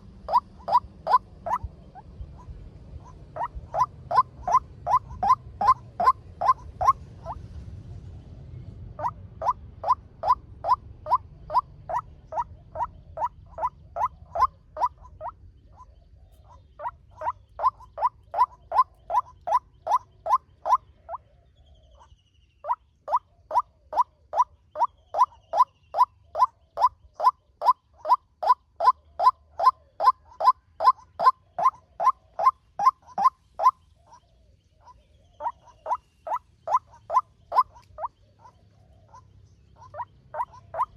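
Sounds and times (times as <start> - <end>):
waterhen calling: 0.0 - 7.4, 9.0 - 15.9, 16.5 - 21.2, 23.1 - 40.9.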